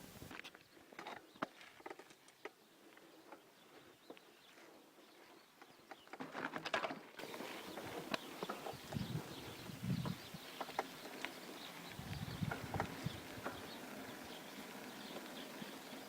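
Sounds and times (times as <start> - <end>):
rustling: 6.2 - 16.0
bird chirps: 7.2 - 16.0.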